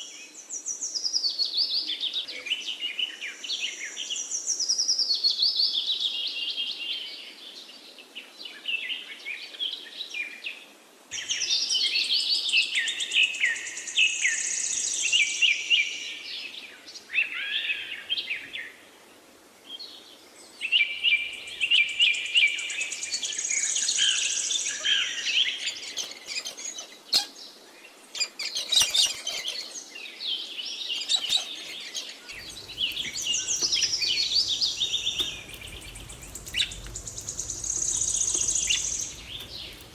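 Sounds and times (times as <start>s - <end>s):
small birds chirping and trilling: 25.7s - 39.9s.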